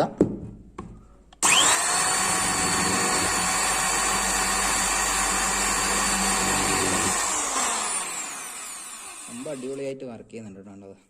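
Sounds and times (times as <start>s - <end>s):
electric drill drilling into brick: 1.4s - 9.8s.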